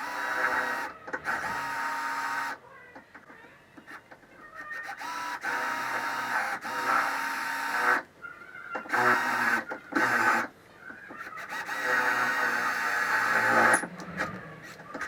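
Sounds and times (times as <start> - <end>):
electric drill drilling steel: 0.0 - 2.6, 4.8 - 8.0, 8.9 - 10.5, 11.2 - 15.0.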